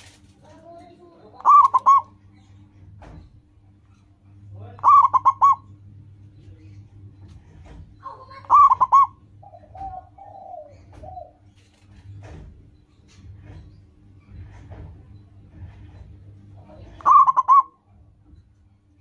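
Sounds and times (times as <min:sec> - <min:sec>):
faint low hum: 0:00.0 - 0:19.0
dove cooing: 0:01.3 - 0:02.2, 0:04.8 - 0:05.8, 0:08.0 - 0:11.5, 0:16.6 - 0:17.9.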